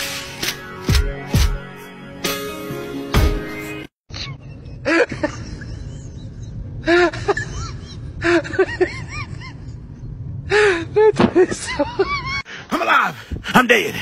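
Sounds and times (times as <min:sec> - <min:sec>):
music: 0:00.0 - 0:04.0.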